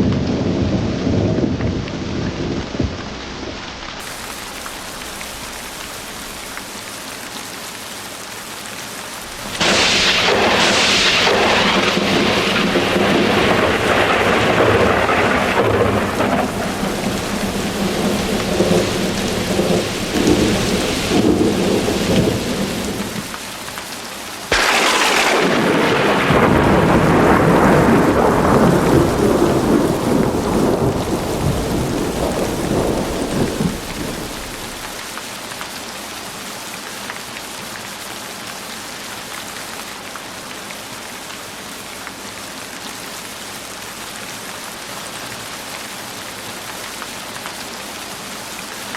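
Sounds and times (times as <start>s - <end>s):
thunder rumbling: 0.0s - 6.9s, 9.3s - 23.4s, 24.5s - 35.0s
heavy rain: 0.0s - 48.9s
sharp thunderclap: 9.3s - 23.4s, 24.5s - 35.0s.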